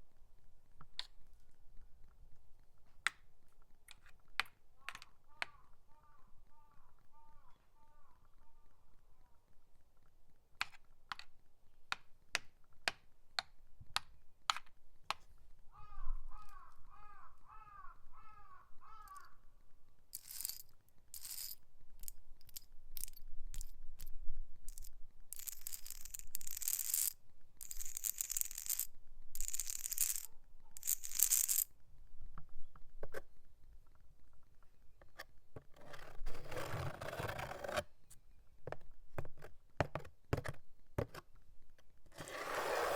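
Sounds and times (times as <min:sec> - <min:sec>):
fingernail scratching surfaces: 0:35.7 - 0:37.8, 0:42.2 - 0:42.9.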